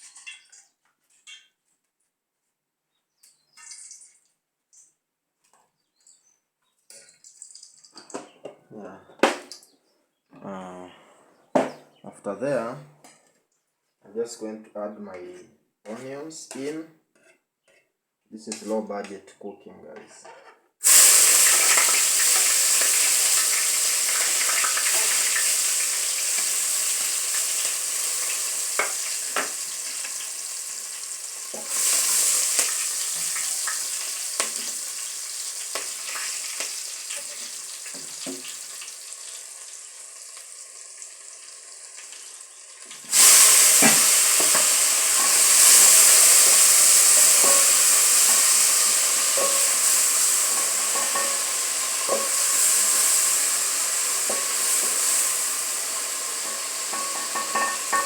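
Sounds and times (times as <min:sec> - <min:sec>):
onions sizzling in a pan: 0:20.8 - 0:58.0
stirring knocks: 0:43.7 - 0:55.0.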